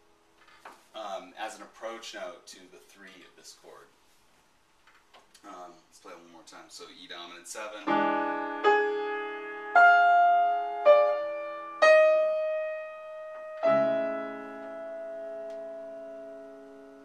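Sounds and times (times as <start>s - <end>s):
piano chords: 7.8s - 17.0s.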